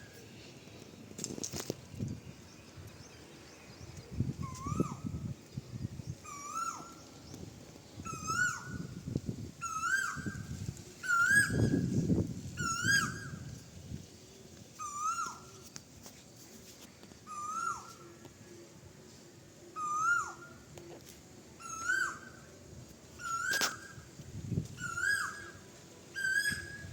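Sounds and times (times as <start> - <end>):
animal whistled call: 4.4 - 5.0, 6.2 - 6.9, 11.0 - 11.9, 19.8 - 20.4.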